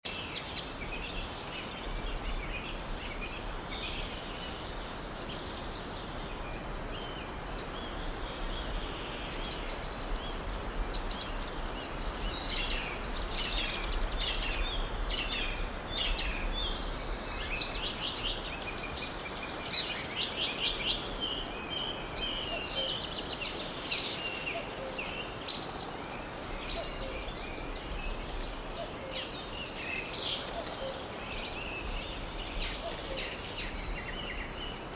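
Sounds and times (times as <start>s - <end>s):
birds singing and chirping: 0.1s - 34.9s
steady background hiss: 0.1s - 34.9s.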